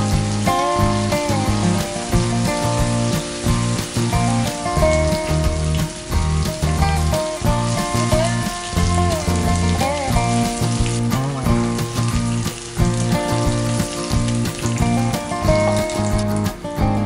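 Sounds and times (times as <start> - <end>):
background music with bass line: 0.0 - 17.0
cheese sizzling in oil: 0.0 - 17.0.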